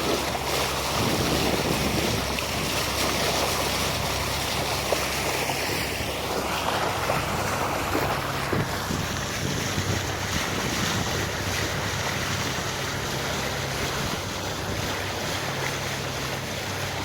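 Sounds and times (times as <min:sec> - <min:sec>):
diesel engine running: 0:00.0 - 0:17.0
water noise: 0:00.0 - 0:17.0
wind buffeting microphone: 0:00.0 - 0:17.0.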